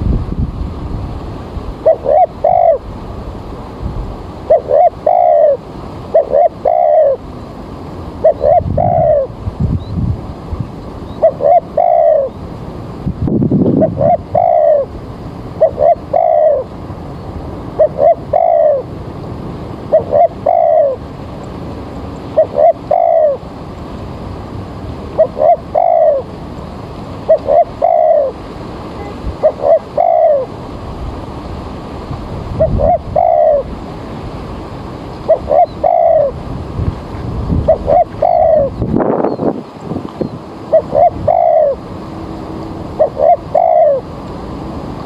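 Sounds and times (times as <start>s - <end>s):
steady background hiss: 0.0s - 45.0s
dove cooing: 1.8s - 3.0s, 4.4s - 7.3s, 8.2s - 9.4s, 11.0s - 12.4s, 13.8s - 16.8s, 17.7s - 18.9s, 19.9s - 21.1s, 22.3s - 23.5s, 25.1s - 26.4s, 27.2s - 30.8s, 32.5s - 33.8s, 35.2s - 36.4s, 37.7s - 39.4s, 40.6s - 41.9s, 42.8s - 44.2s.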